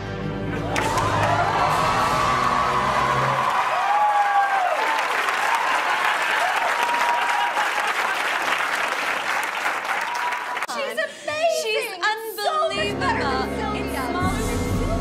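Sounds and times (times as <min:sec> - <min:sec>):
audience applauding and cheering: 0:00.4 - 0:11.0
whoops: 0:00.6 - 0:08.0, 0:09.9 - 0:10.7.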